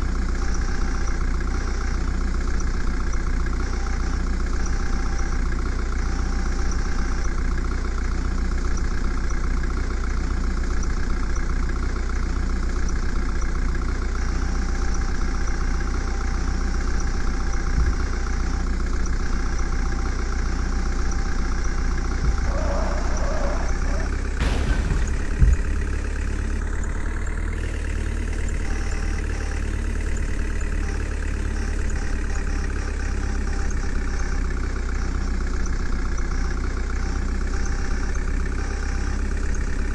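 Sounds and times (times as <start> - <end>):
heavy vehicle engine idling: 0.0 - 39.9.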